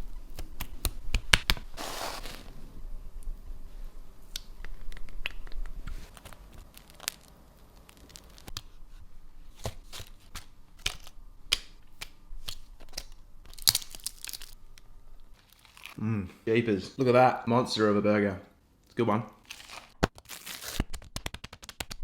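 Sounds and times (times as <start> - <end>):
sandwich crackling and tearing: 4.4 - 8.6, 9.5 - 14.6, 15.3 - 16.0, 19.4 - 22.0.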